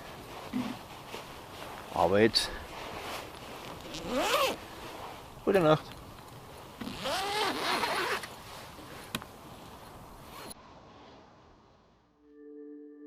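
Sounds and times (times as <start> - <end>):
zipper pulled shut: 3.8 - 4.6, 6.8 - 8.3.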